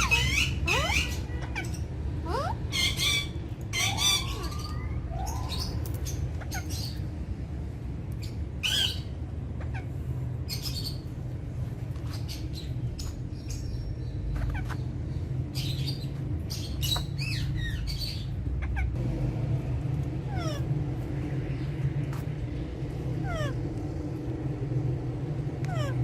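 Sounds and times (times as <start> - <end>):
parakeets squawking and chirping: 0.0 - 7.2, 8.2 - 11.4, 12.0 - 19.0, 20.0 - 24.3, 25.7 - 26.0
steady low hum: 0.0 - 26.0.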